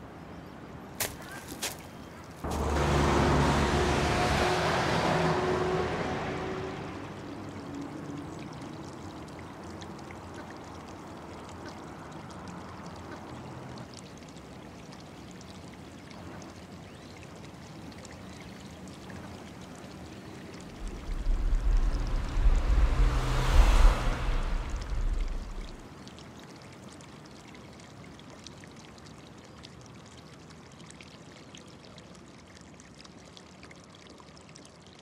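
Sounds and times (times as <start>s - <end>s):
trickling water hiss: 0.0s - 35.0s
loud deep rumble: 20.8s - 25.8s
loud rushing noise: 20.8s - 25.8s.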